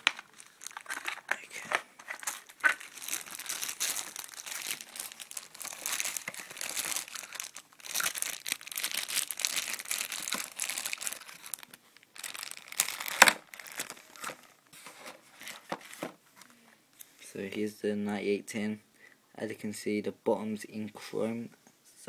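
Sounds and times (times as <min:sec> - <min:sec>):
packaging crinkling and rustling: 0:00.0 - 0:16.2.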